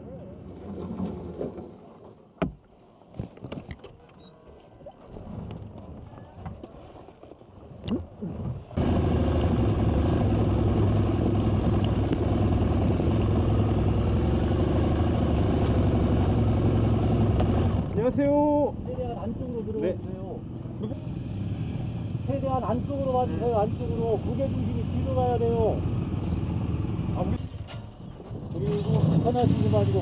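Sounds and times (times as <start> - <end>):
loud steady engine: 8.8 - 18.0, 20.9 - 27.4.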